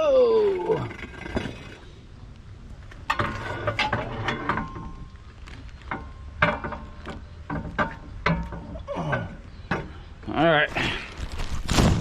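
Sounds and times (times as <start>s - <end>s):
metal clanking and knocking: 3.0s - 5.2s, 5.8s - 10.0s.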